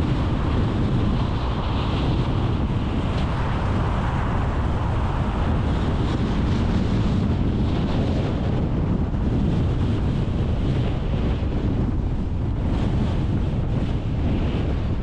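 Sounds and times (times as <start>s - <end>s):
car road and wind noise: 0.0s - 15.0s
wind buffeting microphone: 0.0s - 15.0s.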